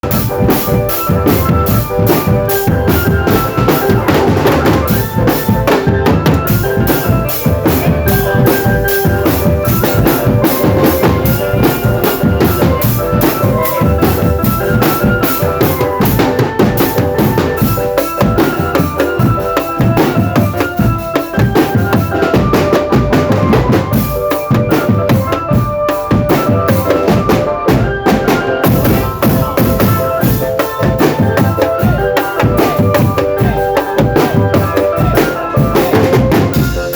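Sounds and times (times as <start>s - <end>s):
marching drum band: 0.0s - 36.9s
melody over drumming: 0.0s - 36.9s.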